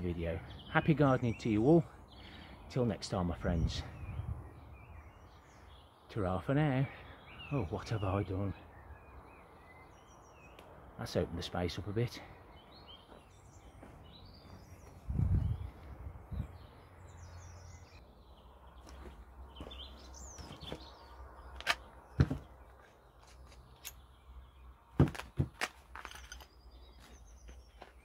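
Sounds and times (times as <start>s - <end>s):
small birds chirping: 0.0s - 28.0s
sharp knocks: 21.6s - 22.5s, 25.0s - 25.7s
dull thud: 22.2s - 22.5s, 25.0s - 25.6s.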